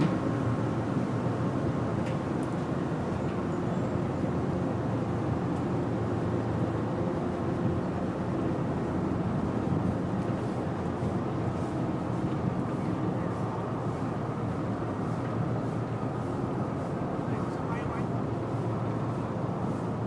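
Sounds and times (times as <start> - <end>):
ship machinery drone: 5.8 - 20.0.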